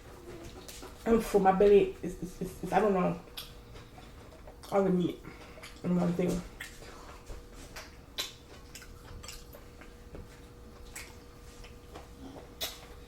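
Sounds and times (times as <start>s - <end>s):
wet chewing: 3.2s - 13.0s.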